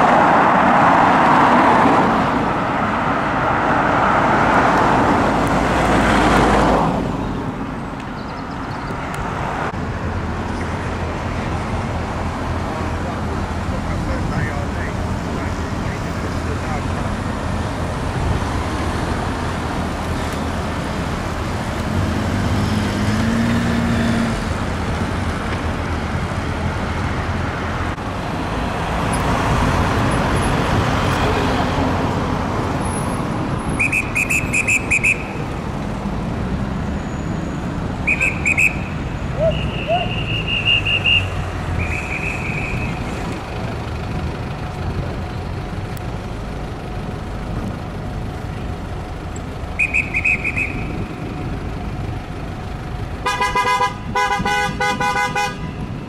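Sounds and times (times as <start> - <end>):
city road traffic: 0.0 - 56.0
shrill trilling whistle blasts: 33.8 - 35.4, 38.1 - 43.0, 49.8 - 50.9.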